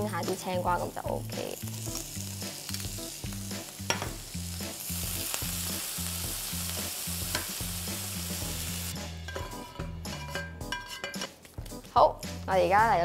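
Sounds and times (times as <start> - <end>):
cucumber slices sizzling in pan: 0.0 - 10.3.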